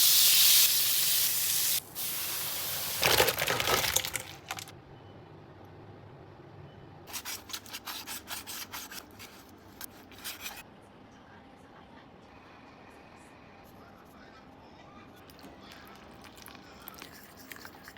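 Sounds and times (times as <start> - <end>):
hot oil sizzling: 0.0 - 3.4.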